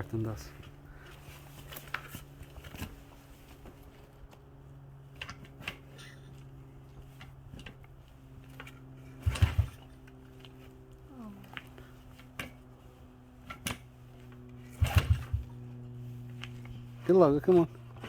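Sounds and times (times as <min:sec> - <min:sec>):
steady low hum: 0:00.0 - 0:18.0
dirt bike engine turning over: 0:09.1 - 0:10.0, 0:14.6 - 0:15.7.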